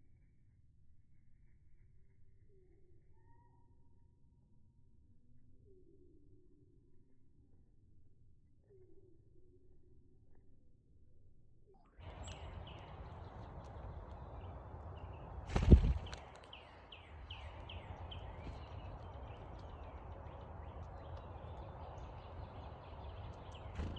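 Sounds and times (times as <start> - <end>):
outdoor background noise: 4.9 - 23.9
songbird chirping: 12.0 - 23.9.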